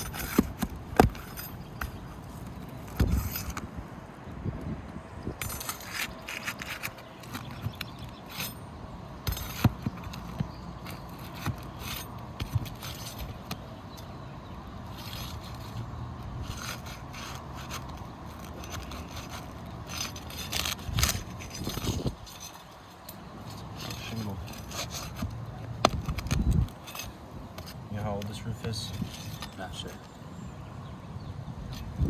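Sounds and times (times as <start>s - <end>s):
shingles scraping: 0.0s - 4.0s, 5.4s - 30.6s
sharp clicks and knocks: 16.5s - 28.3s.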